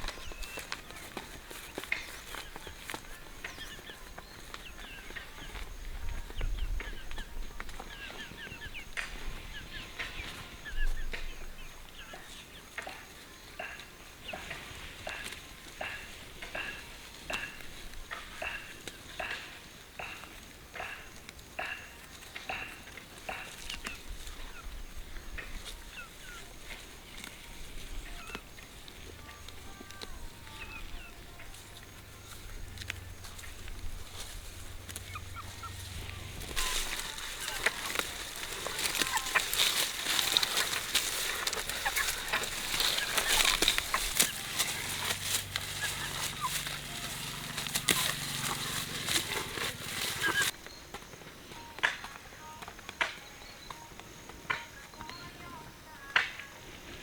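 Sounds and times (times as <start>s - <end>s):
birds chirping: 0.0s - 57.0s
short high chirping calls: 45.7s - 50.6s.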